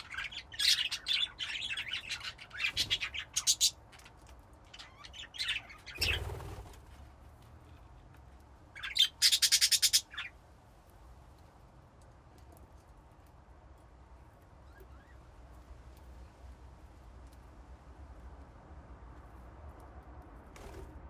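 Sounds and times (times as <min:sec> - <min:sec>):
budgerigars chirping: 0:00.0 - 0:03.8, 0:04.8 - 0:06.4, 0:08.8 - 0:10.3.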